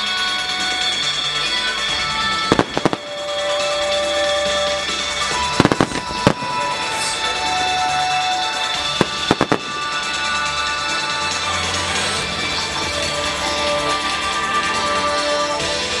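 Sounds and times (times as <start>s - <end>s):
background music with held tones: 0.0s - 16.0s
firework shells bursting: 2.5s - 3.6s, 5.4s - 7.1s, 8.8s - 10.4s.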